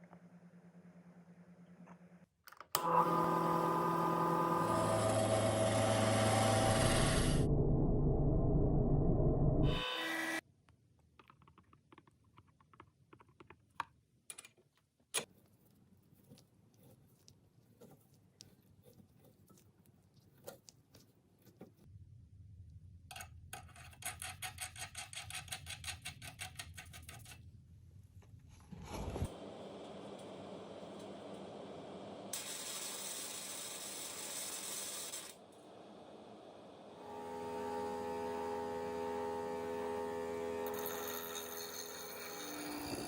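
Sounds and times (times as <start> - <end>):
metal clicks taps and scrapes: 23.1 - 27.5.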